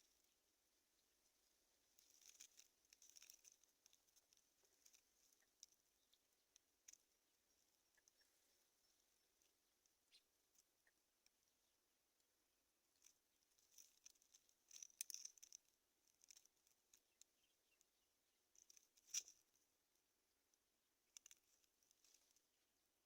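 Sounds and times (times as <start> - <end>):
birds rustling in grass nest: 0.0 - 11.0, 12.9 - 17.8, 18.6 - 19.6.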